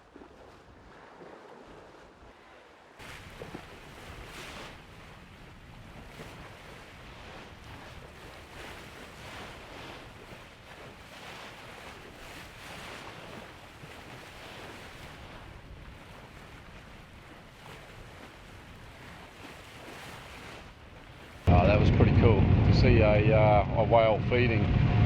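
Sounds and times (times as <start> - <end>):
sea water rushing: 0.0 - 25.0
wind buffeting microphone: 3.0 - 25.0
wind rushing: 21.5 - 25.0.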